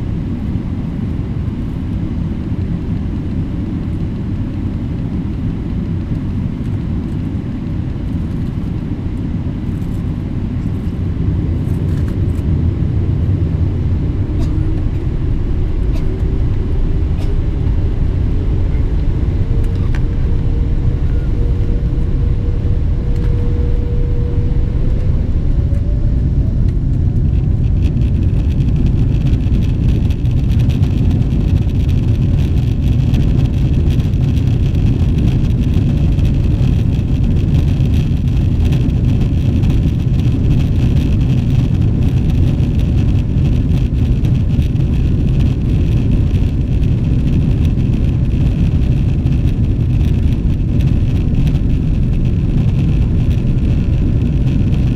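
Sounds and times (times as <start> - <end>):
high engine whine: 0.0 - 54.9
takeoff roll rumble: 0.0 - 54.9
jet engines spooling up: 9.7 - 30.4.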